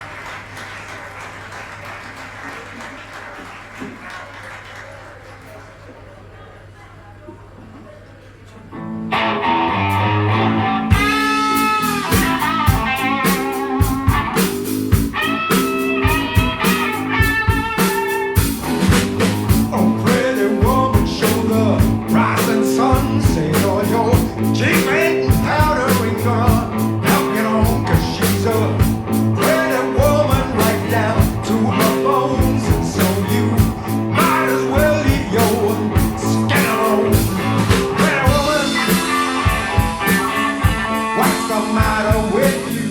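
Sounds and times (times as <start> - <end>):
electric guitar: 8.7 - 42.9
bass line: 9.0 - 42.9
steady drum beat: 10.9 - 42.9
person singing: 19.5 - 42.9.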